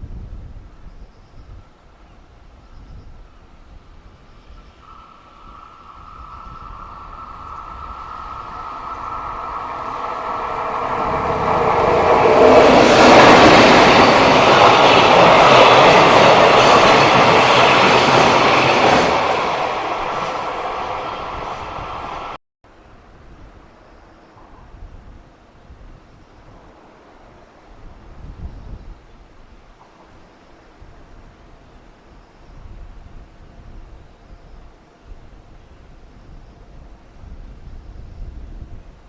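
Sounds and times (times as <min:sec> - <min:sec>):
freight train wheels rumbling: 0:04.6 - 0:22.4
high steady whine: 0:04.8 - 0:16.7.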